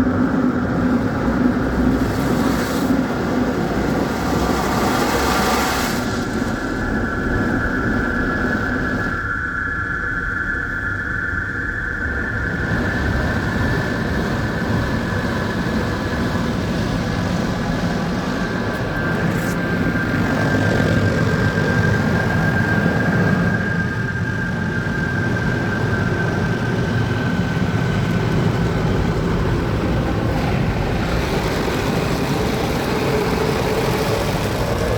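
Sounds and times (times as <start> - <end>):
car wash machinery whine: 0.0 - 34.9
rushing noise: 27.0 - 34.9.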